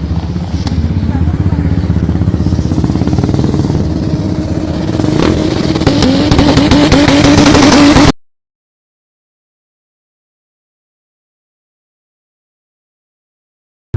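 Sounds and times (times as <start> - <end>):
car engine banging on launch limiter: 4.8 - 8.2.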